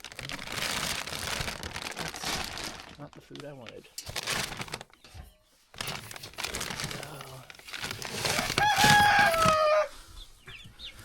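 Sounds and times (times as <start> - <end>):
rustling: 0.0 - 9.8
rooster crowing: 8.3 - 10.0
faint chick peeps: 9.0 - 11.0.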